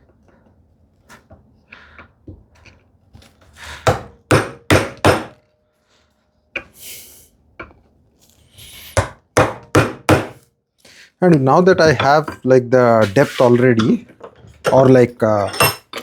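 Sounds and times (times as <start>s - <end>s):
chisel strikes chopping wood: 3.9s - 5.4s, 9.0s - 10.4s.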